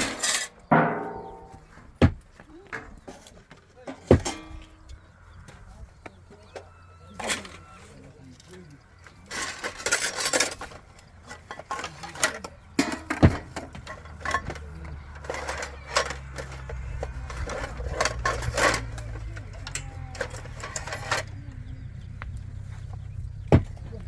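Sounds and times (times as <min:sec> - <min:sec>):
hard objects knocking and clattering: 0:00.0 - 0:04.8, 0:09.3 - 0:21.4, 0:22.9 - 0:24.0
low motor hum: 0:16.1 - 0:24.0.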